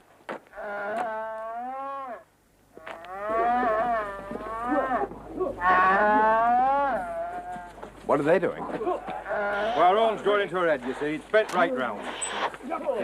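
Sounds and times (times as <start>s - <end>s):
cow mooing: 0.6s - 2.2s, 2.8s - 7.9s, 9.1s - 10.2s.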